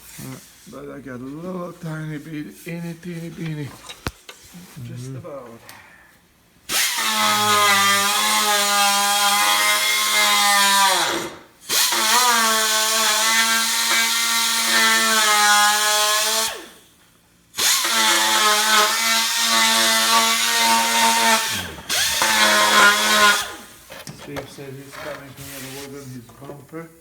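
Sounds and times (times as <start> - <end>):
electric power drill running: 6.7 - 16.8, 17.6 - 23.9.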